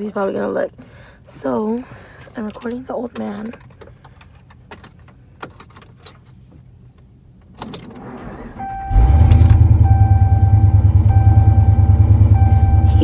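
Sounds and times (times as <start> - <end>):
truck engine rumbling: 7.9 - 13.0
electronic warning chime: 8.6 - 13.0.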